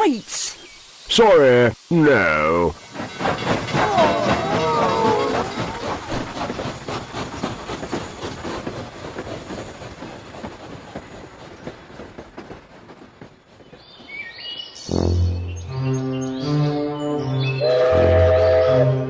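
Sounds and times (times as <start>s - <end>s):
train clattering on rails: 1.2s - 14.9s
loud sustained musical notes: 14.9s - 19.0s.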